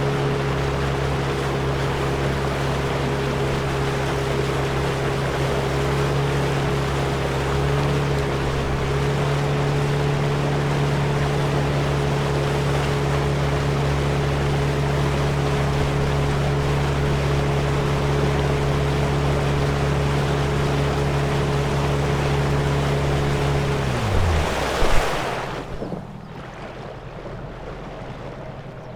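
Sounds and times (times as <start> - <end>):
water rushing: 0.0 - 26.9
motorboat engine running: 0.0 - 28.9.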